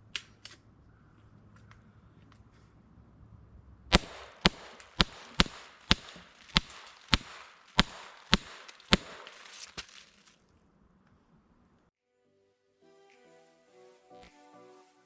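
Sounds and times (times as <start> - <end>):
air pistol shots: 3.9 - 9.8.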